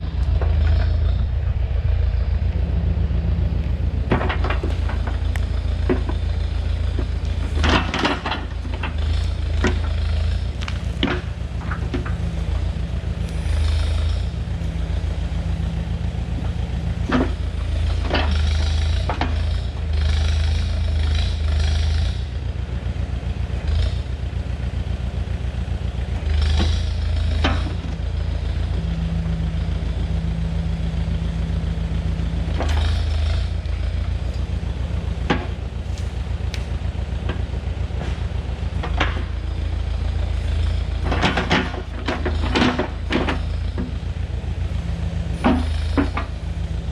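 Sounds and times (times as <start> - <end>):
backhoe engine running: 0.0 - 46.9
sharp knocks and clanks: 4.0 - 12.3, 35.2 - 39.4, 45.4 - 46.3.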